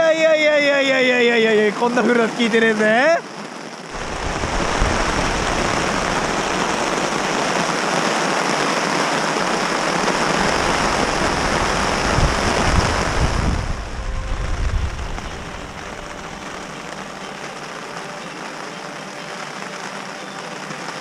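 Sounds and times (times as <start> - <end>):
heavy rain pouring: 0.0 - 21.0
wind buffeting microphone: 4.0 - 7.9, 9.4 - 16.8.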